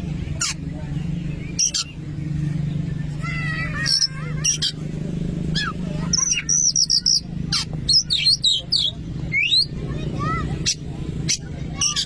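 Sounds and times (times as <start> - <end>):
bird singing whistled notes: 5.6 - 7.3, 7.9 - 9.8.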